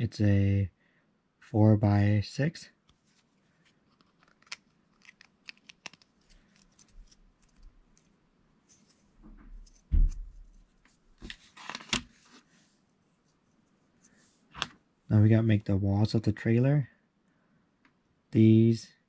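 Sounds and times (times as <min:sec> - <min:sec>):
plastic bricks clicking: 0:04.0 - 0:07.7
dull thump: 0:09.2 - 0:10.4.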